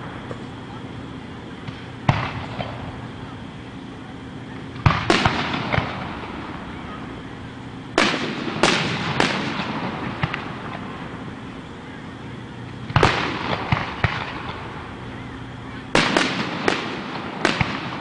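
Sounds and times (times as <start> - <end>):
firework shells bursting: 1.5 - 3.6, 4.7 - 6.8, 7.9 - 11.6, 12.7 - 15.1, 15.9 - 18.0.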